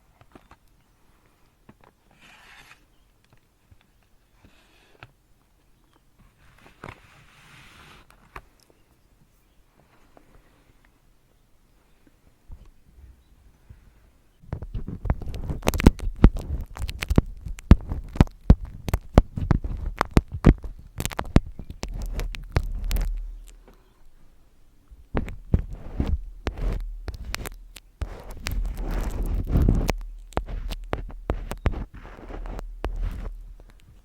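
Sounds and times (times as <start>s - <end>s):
low thuds: 14.4s - 23.8s, 24.9s - 34.0s
sharp taps and clicks: 14.5s - 23.8s, 25.0s - 34.0s.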